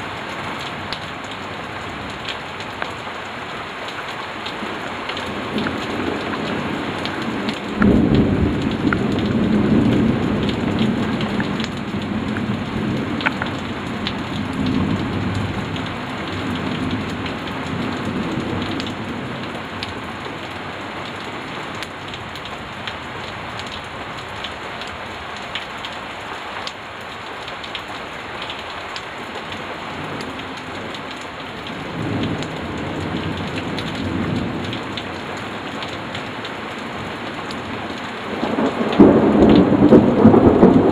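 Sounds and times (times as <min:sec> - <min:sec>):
steady rain falling: 0:00.0 - 0:40.9
raindrop ticks: 0:00.2 - 0:40.9
rolling thunder: 0:07.2 - 0:13.2, 0:38.4 - 0:40.9.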